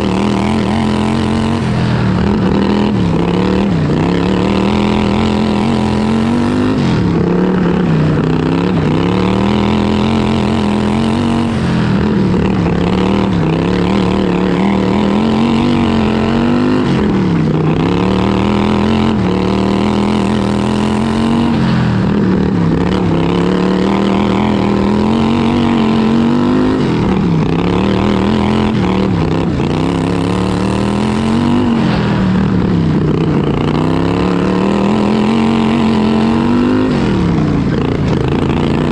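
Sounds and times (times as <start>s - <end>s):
lawn tractor engine revving: 0.0s - 38.9s.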